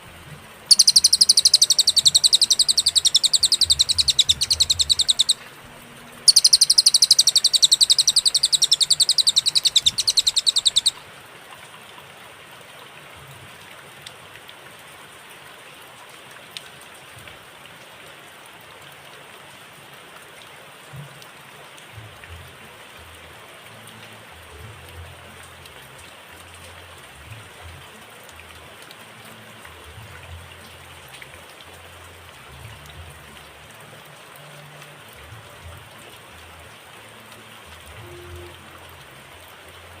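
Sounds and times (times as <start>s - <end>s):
songbird trilling: 0.7s - 5.5s, 6.3s - 11.0s.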